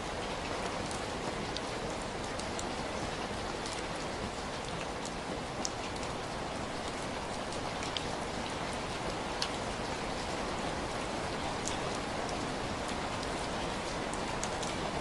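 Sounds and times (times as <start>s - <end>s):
heavy rain hiss: 5.4s - 15.0s
drips and splashes: 11.3s - 15.0s.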